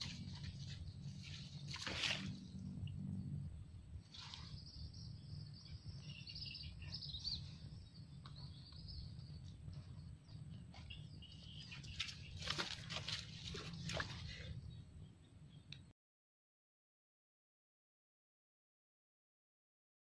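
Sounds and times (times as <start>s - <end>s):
birds chirping: 0.0s - 15.9s
steady low rumble: 0.0s - 15.9s.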